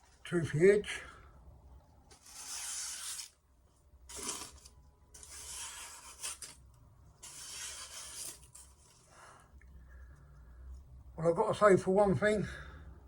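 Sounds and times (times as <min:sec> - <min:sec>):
knife slicing paper towel: 0:02.2 - 0:03.4, 0:04.1 - 0:06.6, 0:07.2 - 0:08.8.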